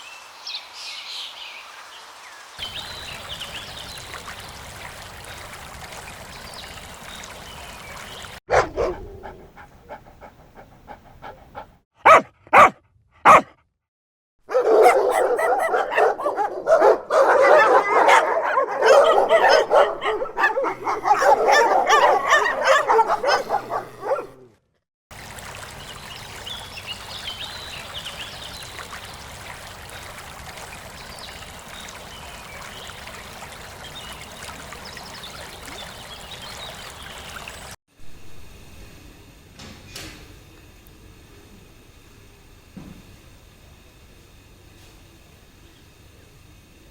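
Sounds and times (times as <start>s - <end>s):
rushing like running water: 0.0s - 8.4s, 25.1s - 37.8s
dogs whining: 8.5s - 12.7s, 13.3s - 13.5s, 14.5s - 24.5s
dogs barking and yapping: 8.5s - 13.5s, 14.5s - 24.6s.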